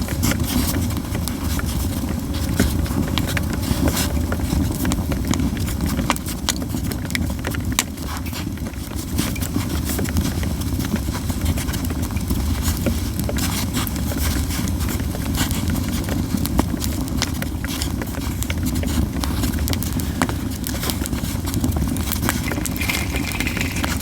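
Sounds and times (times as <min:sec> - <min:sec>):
low rumble of burning fire: 0:00.0 - 0:24.0
campfire crackling and popping: 0:21.8 - 0:24.0.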